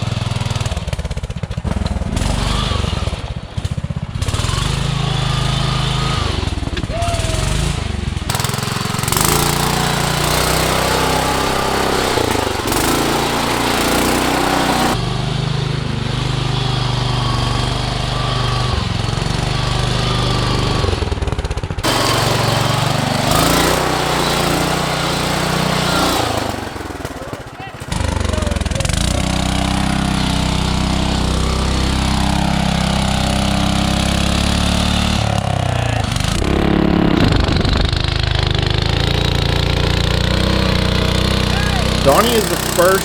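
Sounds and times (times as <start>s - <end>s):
lawn tractor engine revving: 0.0s - 43.0s.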